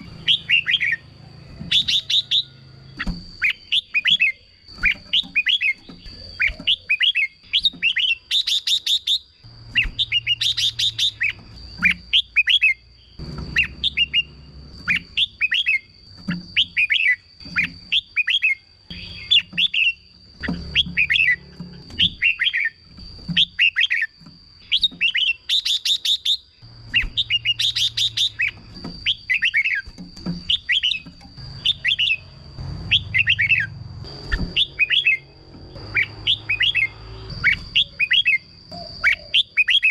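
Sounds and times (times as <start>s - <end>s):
bird singing whistled phrases: 0.0s - 1.0s, 3.4s - 12.8s, 34.3s - 35.3s, 35.9s - 39.9s
thin high whine: 26.6s - 39.4s.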